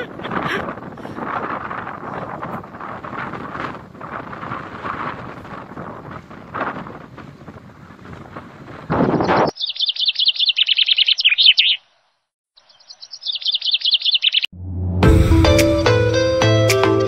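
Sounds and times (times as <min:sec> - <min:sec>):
wind buffeting microphone: 0:00.0 - 0:09.6
bird chirping: 0:09.1 - 0:14.5
music: 0:14.6 - 0:17.0.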